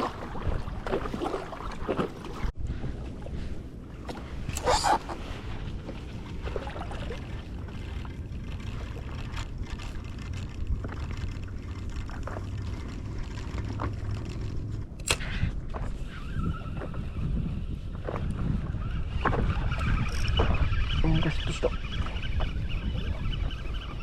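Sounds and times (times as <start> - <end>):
small water splashes: 0.0 - 2.6, 4.0 - 14.2
water lapping against a board: 0.0 - 14.9
wind rumble on microphone: 0.0 - 24.0
sharp click: 15.0 - 15.4.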